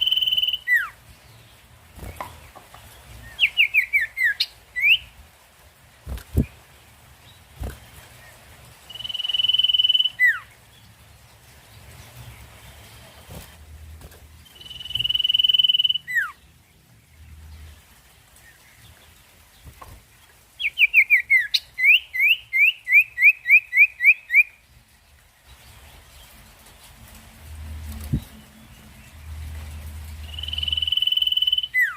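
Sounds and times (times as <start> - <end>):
songbird whistling: 0.0 - 1.0, 3.3 - 5.1, 8.9 - 10.5, 14.6 - 16.4, 20.6 - 24.6, 30.2 - 31.9.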